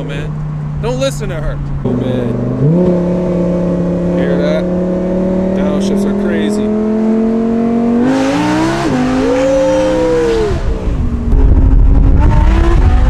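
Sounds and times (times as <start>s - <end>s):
loud car exhaust revving: 1.8s - 13.0s
loud low rumble: 9.4s - 13.0s.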